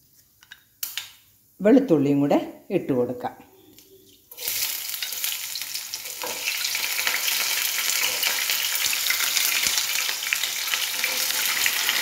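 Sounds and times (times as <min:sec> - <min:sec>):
garlic sizzling in hot oil: 0:04.3 - 0:12.0.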